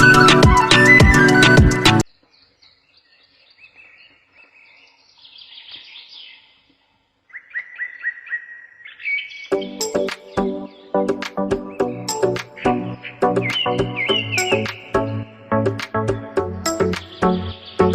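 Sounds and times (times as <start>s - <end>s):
background music: 0.0s - 2.0s, 9.5s - 17.9s
birds chirping: 0.0s - 17.9s.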